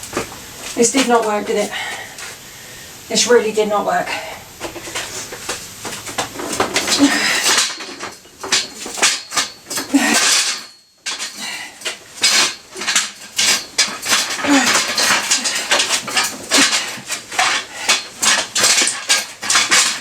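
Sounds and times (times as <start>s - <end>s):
metal clanks and clinks: 6.3s - 20.0s.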